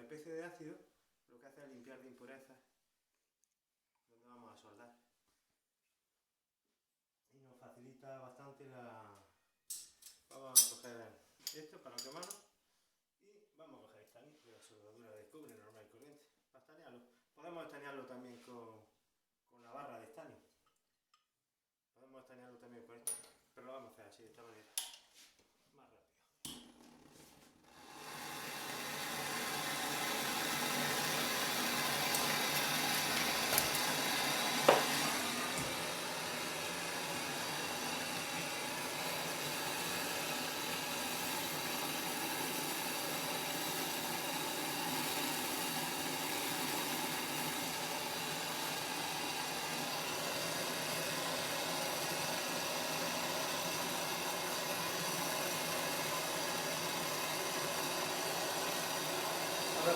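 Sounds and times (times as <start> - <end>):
blowtorch flame hissing: 27.6 - 59.9.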